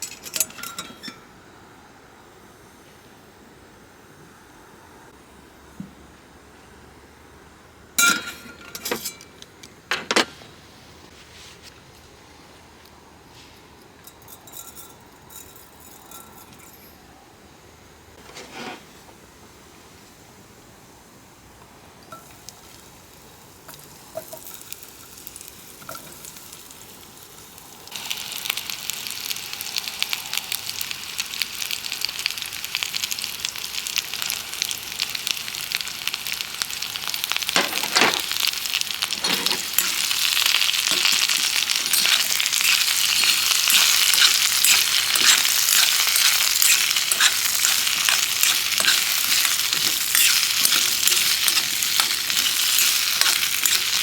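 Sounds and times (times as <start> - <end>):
food sizzling in hot fat: 22.0 - 54.0.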